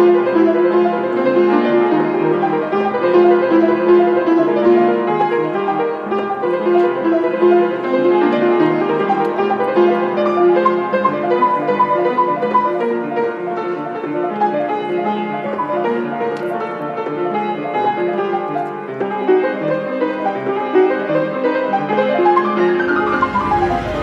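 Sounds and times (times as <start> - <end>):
solo piano playing: 0.0 - 24.0
low rumble: 22.8 - 24.0.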